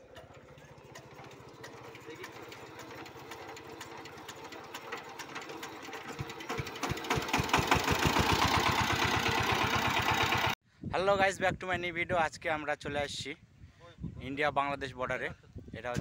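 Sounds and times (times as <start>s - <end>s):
diesel engine chugging: 0.0s - 10.6s.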